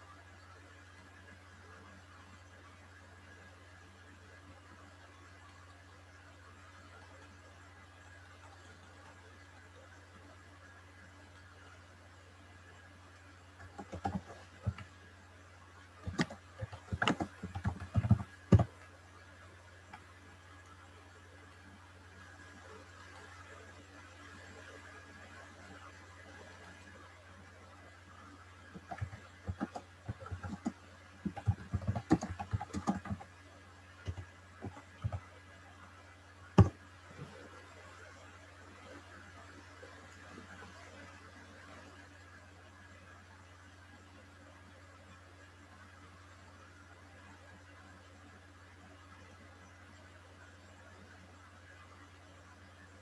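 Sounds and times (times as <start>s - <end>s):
low electrical hum: 0.0s - 53.0s
keyboard typing: 13.6s - 14.9s, 16.0s - 18.7s, 28.8s - 33.3s, 34.0s - 35.2s, 36.6s - 36.8s
sharp clicks and knocks: 16.0s - 18.7s, 28.8s - 33.2s.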